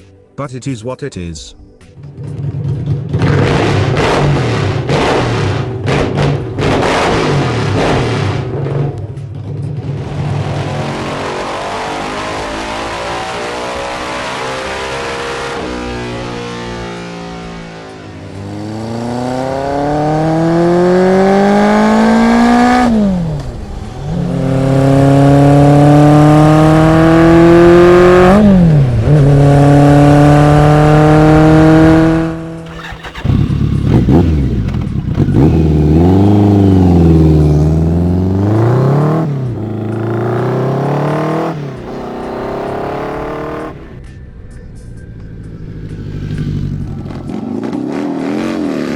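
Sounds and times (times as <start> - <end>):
motorcycle engine accelerating: 2.0 - 48.9
engine revving in quick blips: 24.5 - 43.9.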